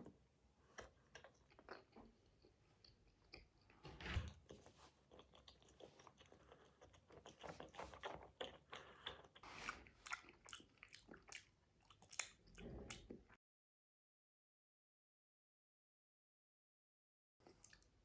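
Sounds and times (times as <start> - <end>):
person chewing gummy candy: 0.6 - 3.8, 4.4 - 13.4.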